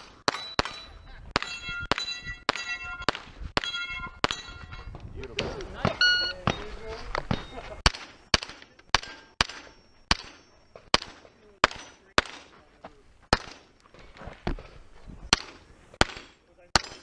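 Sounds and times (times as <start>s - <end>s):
carbine single shots: 0.0s - 4.5s, 7.4s - 12.6s, 13.3s - 13.7s, 15.3s - 17.0s.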